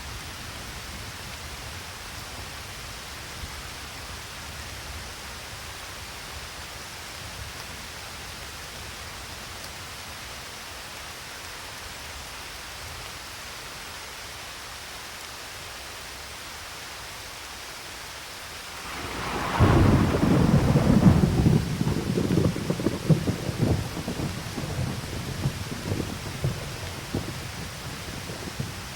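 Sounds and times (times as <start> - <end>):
steady rain: 0.0 - 28.9
thunder clap and rumble: 18.8 - 28.9.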